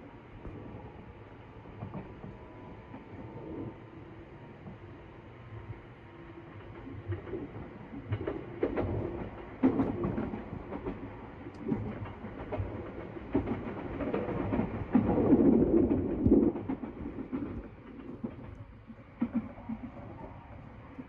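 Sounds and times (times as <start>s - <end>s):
train rumbling: 0.0s - 21.0s
wheels clicking over rail joints: 6.5s - 21.0s.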